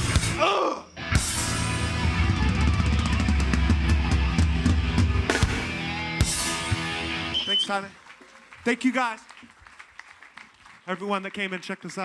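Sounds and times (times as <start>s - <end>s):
bass guitar: 0.0s - 7.5s
distorted guitars: 0.0s - 7.7s
bass drum: 1.2s - 7.3s.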